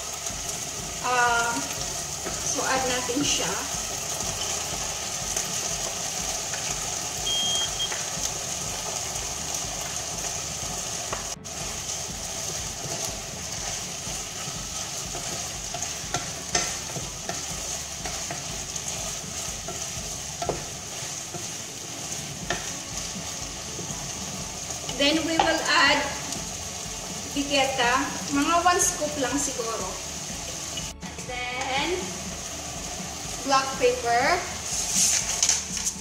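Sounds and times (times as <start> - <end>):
chicken and vegetables sizzling: 0.0 - 36.0
wooden spatula knocking a pot: 14.4 - 21.5, 22.4 - 22.8, 24.9 - 26.0.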